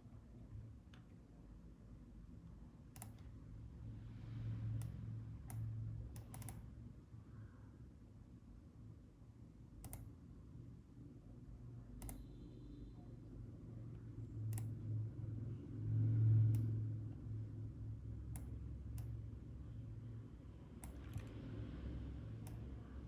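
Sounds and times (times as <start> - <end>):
computer mouse clicking: 2.9 - 3.3, 4.8 - 6.7, 9.8 - 10.1, 12.0 - 12.3, 14.5 - 14.7, 18.3 - 19.1, 20.8 - 21.3, 22.4 - 22.7
low hum: 12.0 - 23.0.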